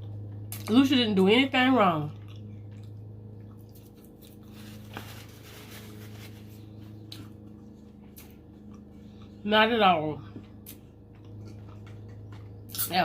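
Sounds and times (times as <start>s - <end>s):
low steady hum: 0.0s - 13.0s
person chewing crunchy fried food: 2.0s - 9.4s, 10.3s - 12.8s.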